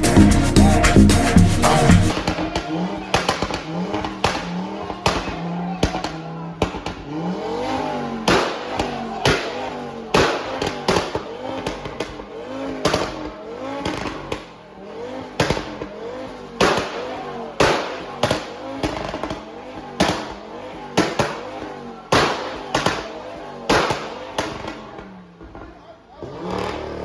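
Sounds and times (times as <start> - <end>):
car engine revving: 0.0 - 27.0
loud sharp bangs: 1.8 - 7.1, 7.8 - 14.5, 16.6 - 24.9.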